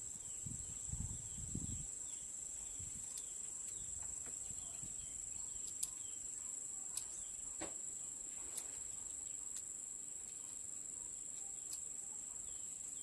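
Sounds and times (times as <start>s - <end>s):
crickets chirring: 0.0s - 13.0s
faint clicks: 5.6s - 6.1s, 11.3s - 11.9s.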